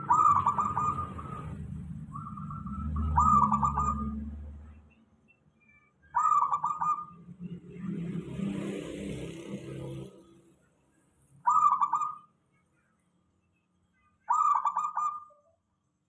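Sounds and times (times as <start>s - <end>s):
dove stuttering coo: 0.0s - 4.2s, 11.4s - 12.2s, 14.3s - 15.3s.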